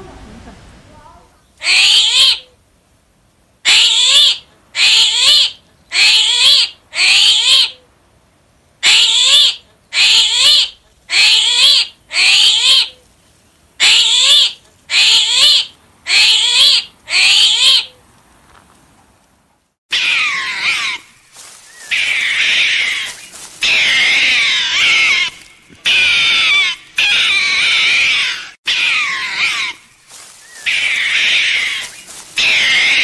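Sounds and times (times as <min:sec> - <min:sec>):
high-pitched animal call: 0:01.6 - 0:02.6, 0:03.6 - 0:07.8, 0:08.8 - 0:13.0, 0:13.8 - 0:18.0, 0:19.9 - 0:21.1, 0:21.7 - 0:33.0.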